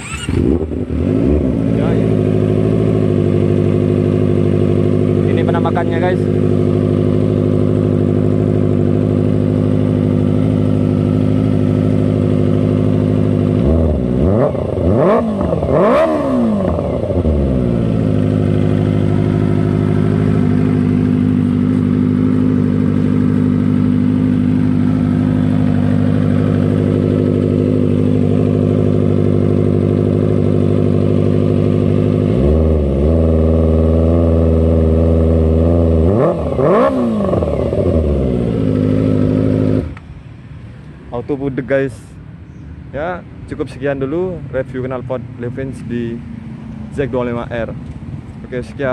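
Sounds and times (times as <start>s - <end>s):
motorcycle engine revving: 0.0s - 40.4s
motorcycle engine idling: 0.0s - 41.0s.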